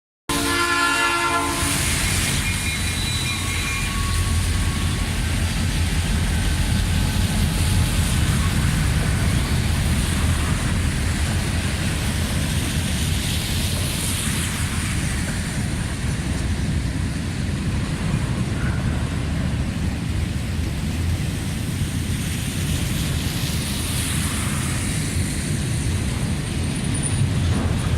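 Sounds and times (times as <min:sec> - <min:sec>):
train horn: 0:00.3 - 0:05.1
freight train rumbling past: 0:00.3 - 0:27.9.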